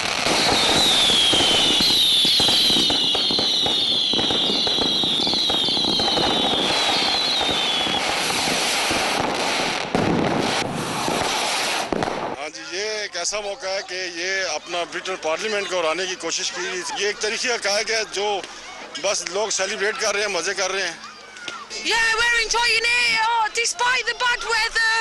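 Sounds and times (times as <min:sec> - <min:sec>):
whistling fireworks: 0:00.0 - 0:12.4
fireworks crackling and banging: 0:00.0 - 0:15.4.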